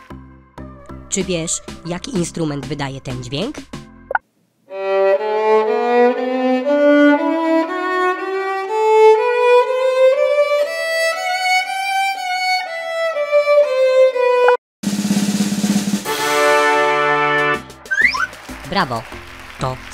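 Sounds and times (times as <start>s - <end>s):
violin melody: 4.7s - 14.6s.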